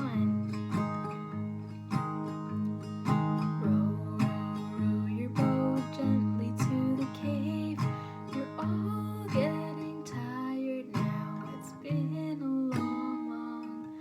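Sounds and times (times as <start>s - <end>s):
person singing children's song: 0.0s - 0.6s, 3.5s - 14.0s
acoustic guitar strumming: 0.0s - 14.0s.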